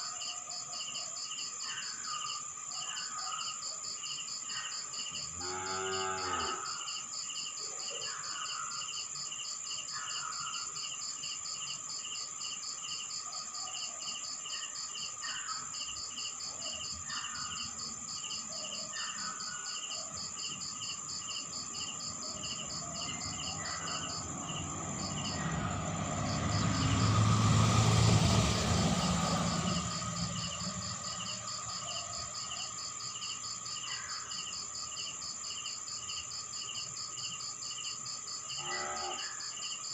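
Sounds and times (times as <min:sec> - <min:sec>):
crickets trilling and chirping: 0:00.0 - 0:39.9
motorcycle passing: 0:22.0 - 0:32.8.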